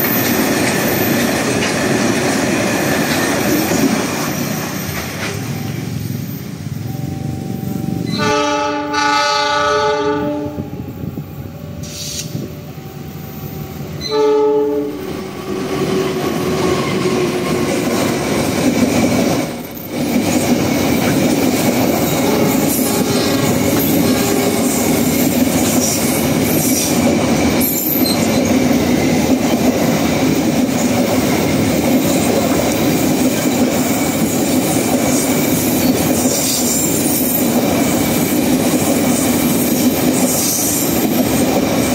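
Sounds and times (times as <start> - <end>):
rail clatter: 0.0 - 6.4, 15.0 - 41.9
train wheels rumbling: 0.0 - 41.9
train horn: 8.0 - 11.0, 14.0 - 16.0, 22.2 - 24.9.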